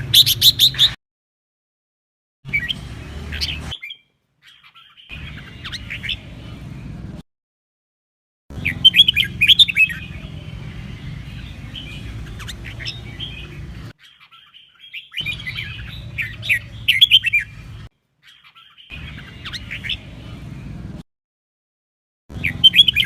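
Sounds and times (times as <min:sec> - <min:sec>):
bird singing high chirps: 0:00.0 - 0:01.0, 0:02.5 - 0:06.7, 0:08.5 - 0:20.6, 0:22.3 - 0:23.0.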